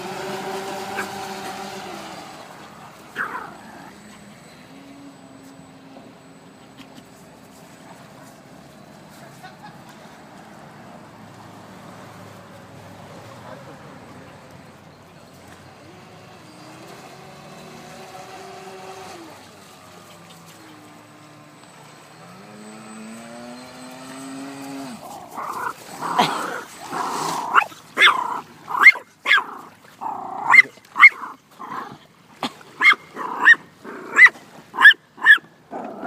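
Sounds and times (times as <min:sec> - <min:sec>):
dog barking and yipping: 0:00.9 - 0:01.3, 0:03.1 - 0:04.2, 0:25.2 - 0:31.9, 0:32.8 - 0:35.5
faint whine: 0:02.1 - 0:09.4, 0:19.2 - 0:28.5.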